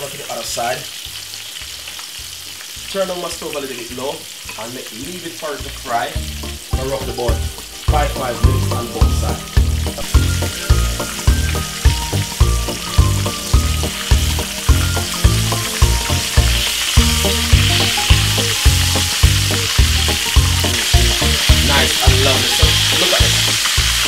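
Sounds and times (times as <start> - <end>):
cutlets sizzling in oil: 0.0 - 24.0
background music with beat: 5.6 - 24.0.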